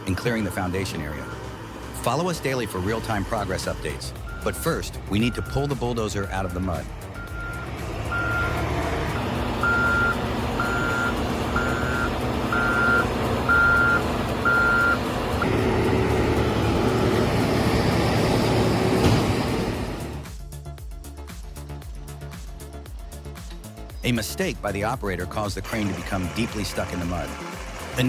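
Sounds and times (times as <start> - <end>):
heavy machine engine running: 0.0 - 20.3, 25.7 - 28.0
backup alarm beeping: 4.2 - 5.8, 6.5 - 20.2.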